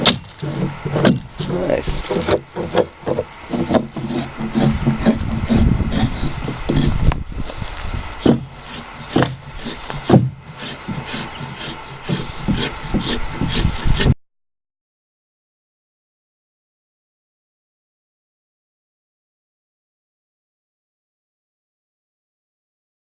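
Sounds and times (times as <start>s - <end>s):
rough scraping of wood: 0.0s - 14.2s
blade knocking on wood: 2.1s - 7.2s, 9.1s - 14.1s.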